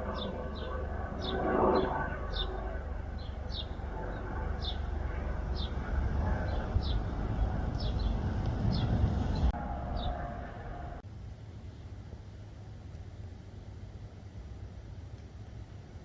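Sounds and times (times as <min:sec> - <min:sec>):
bird chirping: 0:00.1 - 0:11.0
low rumble with faint hum: 0:02.1 - 0:11.0.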